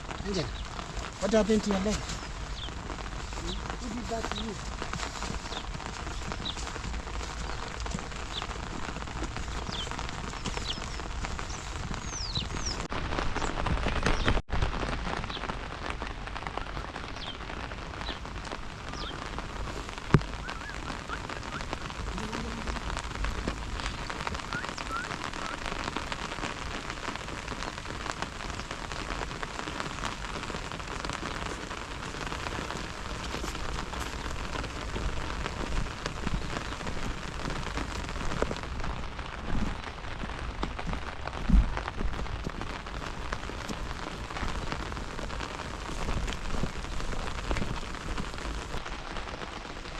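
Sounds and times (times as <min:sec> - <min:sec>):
rain pattering: 0:00.0 - 0:49.9
low thump: 0:41.5 - 0:41.8.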